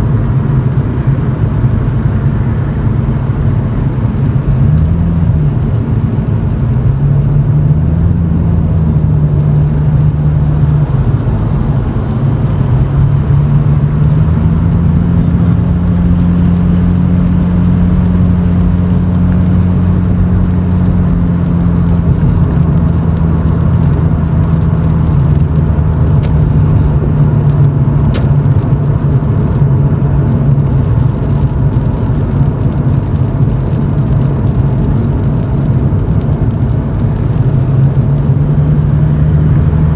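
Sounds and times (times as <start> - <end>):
car exhaust drone from inside cabin: 0.0 - 39.9.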